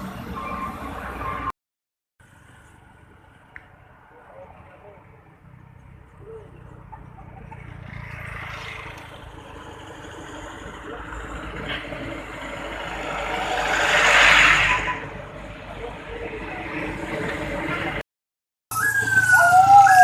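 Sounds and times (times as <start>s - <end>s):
road traffic: 0.0s - 1.6s, 2.2s - 18.1s, 18.7s - 20.0s.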